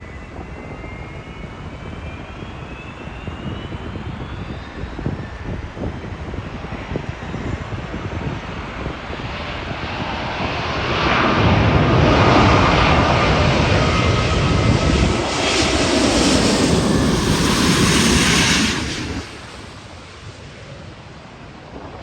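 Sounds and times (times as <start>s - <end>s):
faint engine whine: 0.0s - 21.9s
jet airliner engine rumble: 0.0s - 22.0s.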